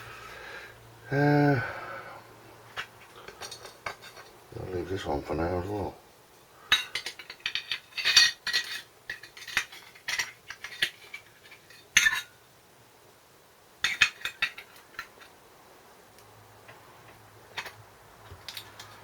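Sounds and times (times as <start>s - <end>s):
metal tools clinking: 2.8s - 4.4s, 6.7s - 12.3s.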